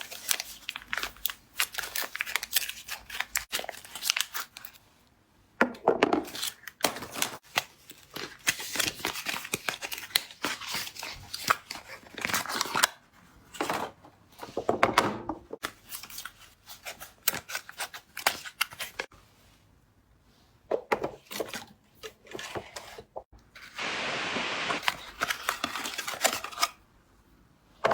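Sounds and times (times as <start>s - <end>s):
packaging tearing: 0.1s - 4.7s.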